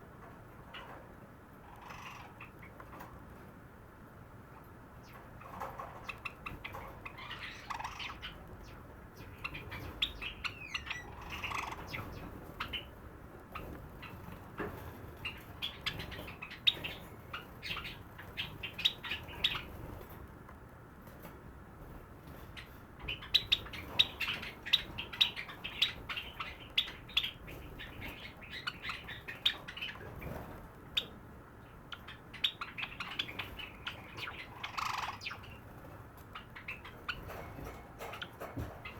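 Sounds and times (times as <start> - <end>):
sparrow singing clicking notes: 31.9 - 35.6.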